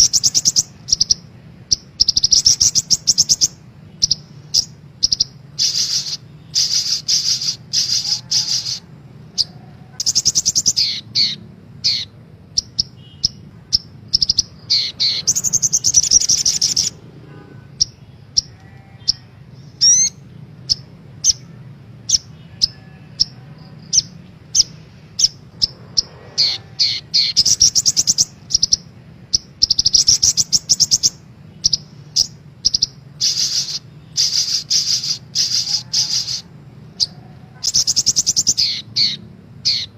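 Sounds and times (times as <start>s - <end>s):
bird chirps and trills: 0.0s - 39.9s.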